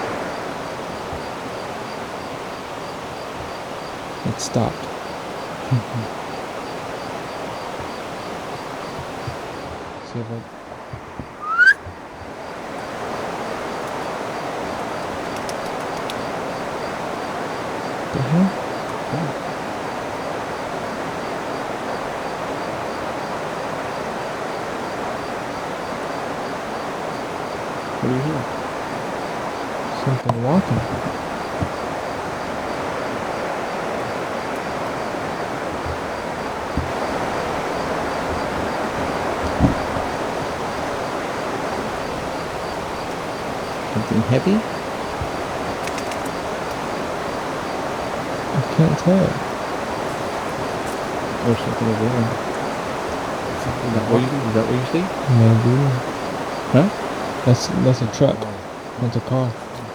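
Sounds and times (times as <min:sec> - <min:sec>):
faint insect chirping: 0:00.0 - 0:59.9
steady rushing hiss: 0:00.0 - 0:59.9
soft low thumps: 0:08.9 - 0:12.4, 0:35.6 - 0:41.1
faint ticks: 0:10.9 - 0:17.0, 0:34.5 - 0:47.6
short rising squeak: 0:11.4 - 0:11.9.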